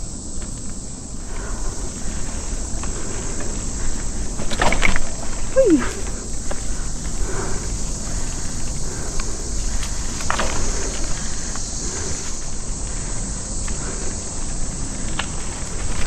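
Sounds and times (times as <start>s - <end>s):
insects buzzing: 0.0s - 16.0s
rustle of movement on trail: 0.0s - 16.0s.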